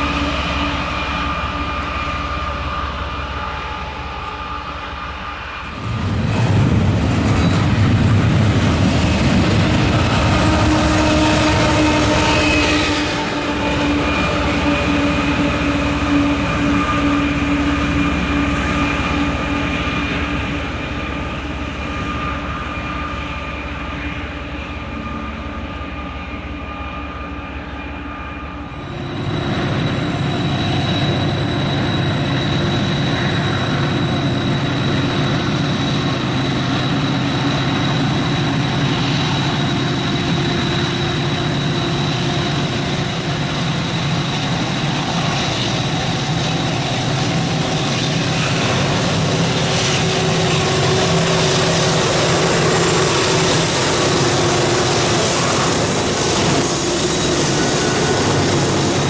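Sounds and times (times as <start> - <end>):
train wheels squealing: 0.0 - 6.4, 7.0 - 59.0
high steady whine: 0.0 - 59.0
train rolling past: 0.0 - 59.0.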